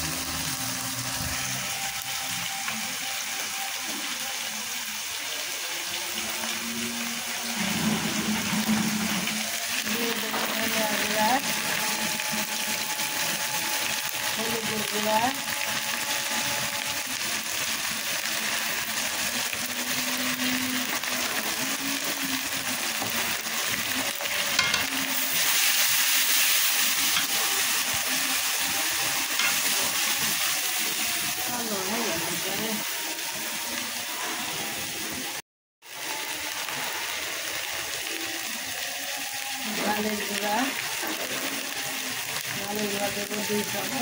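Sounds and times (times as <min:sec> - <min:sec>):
onions frying in hot oil: 0:00.0 - 0:44.0.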